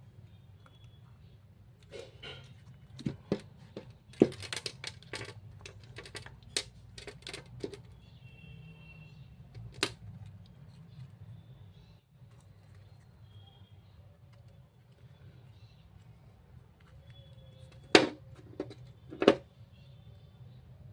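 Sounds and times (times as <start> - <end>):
clicks of small hard objects: 3.0 - 7.9.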